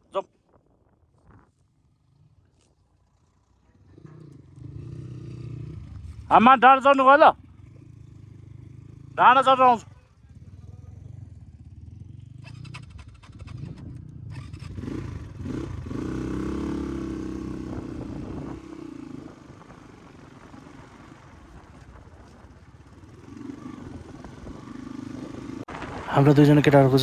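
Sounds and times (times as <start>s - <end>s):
dirt bike engine revving: 3.8s - 19.9s, 22.9s - 27.0s.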